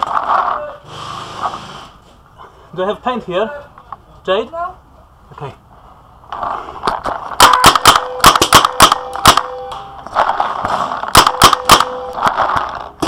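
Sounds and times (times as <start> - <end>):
paintball guns firing: 7.4 - 13.0.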